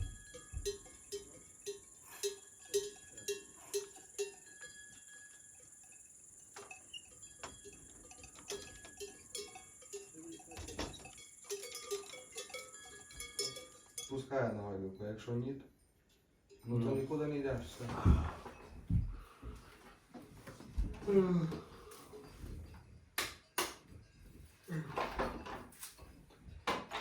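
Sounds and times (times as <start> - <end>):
cowbell clanking: 0.0 - 15.3.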